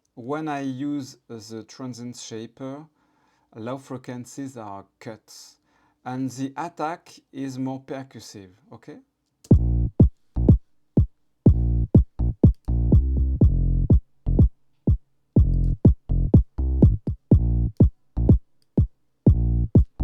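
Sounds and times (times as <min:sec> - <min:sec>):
synth bass notes: 0:09.5 - 0:10.6, 0:11.5 - 0:14.5, 0:15.4 - 0:18.4, 0:19.3 - 0:20.0
drum machine kick: 0:09.5 - 0:20.0.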